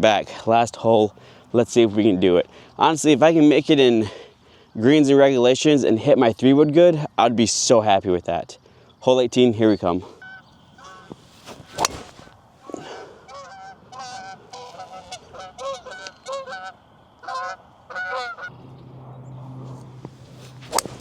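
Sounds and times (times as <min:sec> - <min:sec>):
geese honking: 0:10.2 - 0:11.2, 0:13.2 - 0:18.5
sharp crack: 0:11.2 - 0:12.4, 0:20.3 - 0:21.0.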